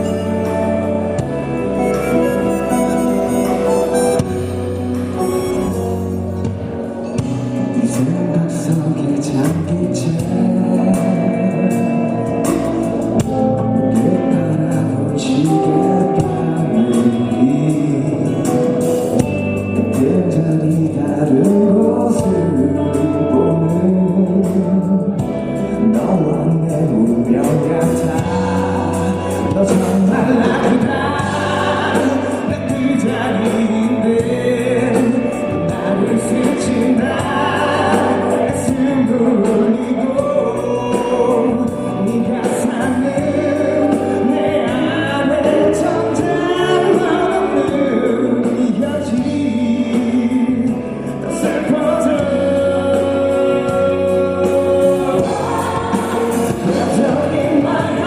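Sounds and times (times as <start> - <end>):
instrumental accompaniment: 0.0 - 58.0
man singing pop ballad: 0.0 - 58.0.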